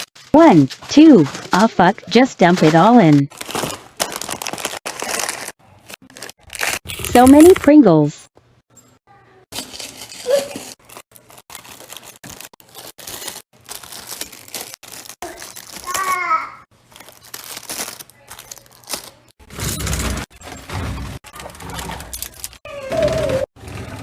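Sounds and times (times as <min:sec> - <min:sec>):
packages clicking and knocking: 0:02.5 - 0:07.6, 0:09.6 - 0:16.2, 0:16.9 - 0:24.0
snack packaging crinkling: 0:02.6 - 0:07.6, 0:09.5 - 0:16.2, 0:16.8 - 0:19.3, 0:22.1 - 0:22.6.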